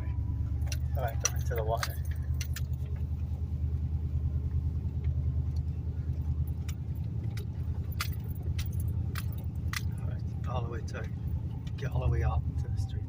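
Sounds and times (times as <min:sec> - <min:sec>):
engine low pulsing rumble: 0:00.0 - 0:13.0
light clicks and jingles: 0:00.5 - 0:03.3, 0:04.9 - 0:13.0.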